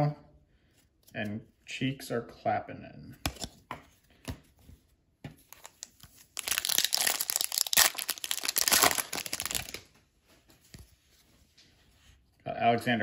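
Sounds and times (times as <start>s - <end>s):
foil wrapper tearing and crinkling: 5.6s - 9.9s.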